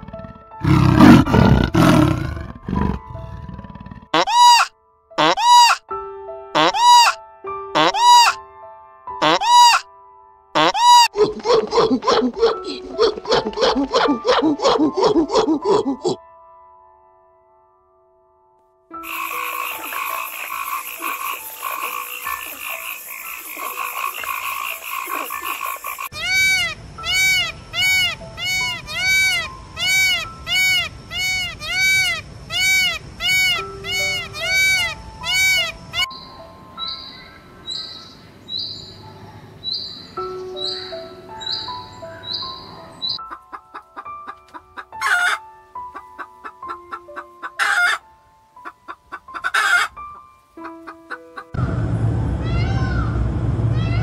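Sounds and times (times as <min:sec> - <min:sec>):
loud animal call: 0:00.0 - 0:05.8, 0:06.6 - 0:07.2, 0:07.8 - 0:08.4, 0:09.2 - 0:09.8, 0:10.6 - 0:16.2, 0:19.0 - 0:36.1
frogs croaking: 0:19.0 - 0:49.9
soft plucked music: 0:40.2 - 0:51.6.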